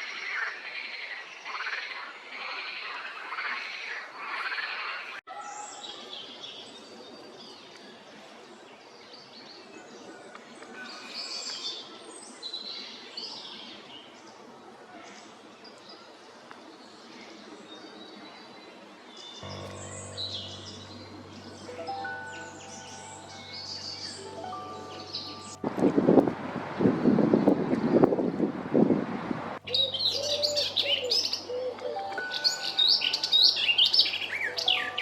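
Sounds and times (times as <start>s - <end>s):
background music: 19.4s - 26.7s, 29.6s - 35.0s
wild birds chirping and whistling: 29.7s - 35.0s.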